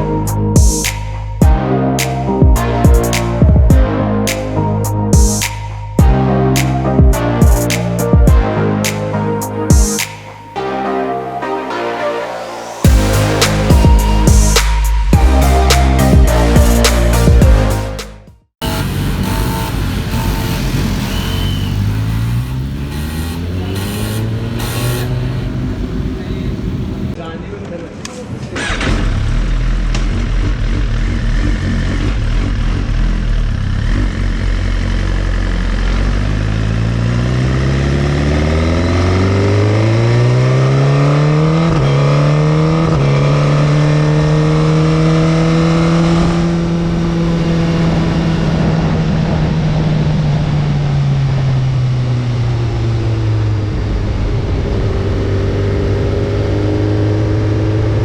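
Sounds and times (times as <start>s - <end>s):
motorcycle engine revving: 18.6s - 27.2s, 28.6s - 58.0s.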